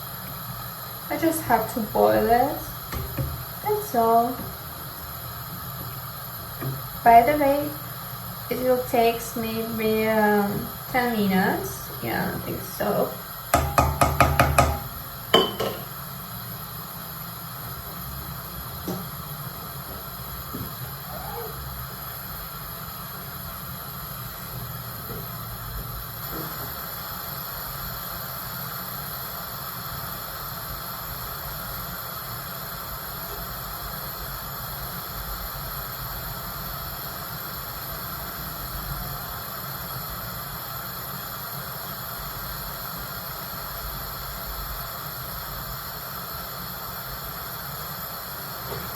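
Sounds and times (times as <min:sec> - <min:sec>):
spoon rapping metal pot: 0:13.6 - 0:15.9.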